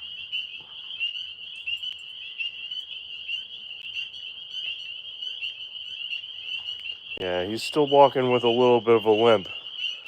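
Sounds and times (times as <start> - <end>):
tree frogs trilling: 0.0 - 10.0.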